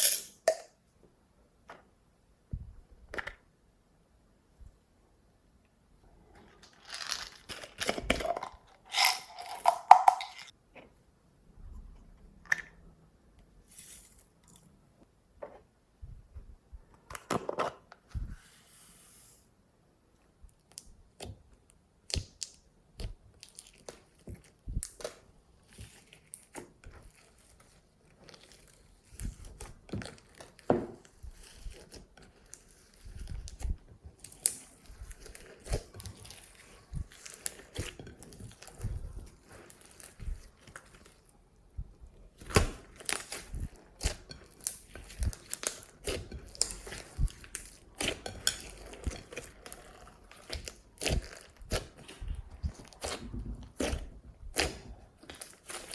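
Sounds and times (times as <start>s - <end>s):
hands squishing slime: 20.6s - 55.9s.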